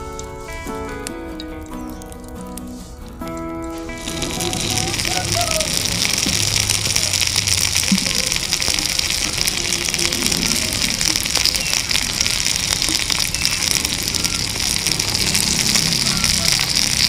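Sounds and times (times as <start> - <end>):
tomato sizzling in hot oil: 0.0 - 17.0.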